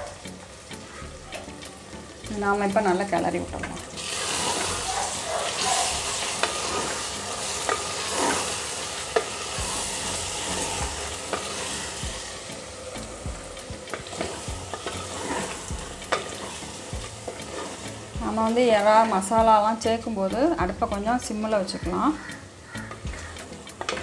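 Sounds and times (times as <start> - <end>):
prawns sizzling: 0.0 - 24.0
wooden spatula scraping: 4.2 - 12.0, 13.8 - 19.3.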